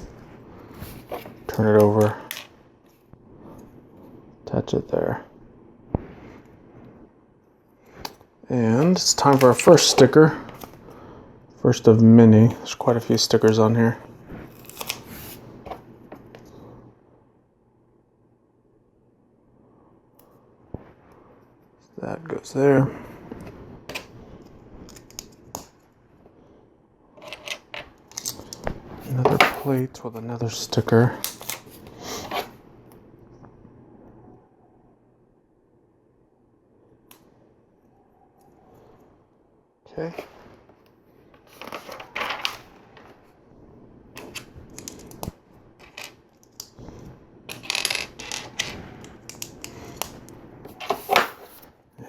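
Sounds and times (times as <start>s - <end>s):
plastic pieces clicking: 47.5s - 50.2s.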